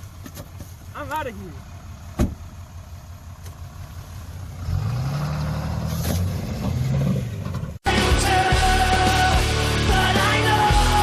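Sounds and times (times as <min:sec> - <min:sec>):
diesel pickup engine accelerating: 0:00.0 - 0:11.0
thump: 0:02.2 - 0:02.4.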